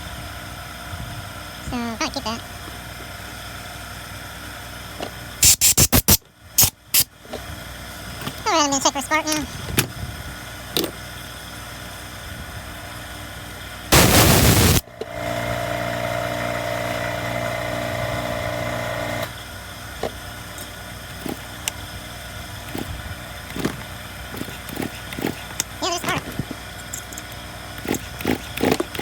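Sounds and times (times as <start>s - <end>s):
chainsaw engine burst: 13.9s - 17.0s
steady hum: 13.9s - 17.2s
recoil starter pull: 20.6s - 21.8s, 22.5s - 29.0s.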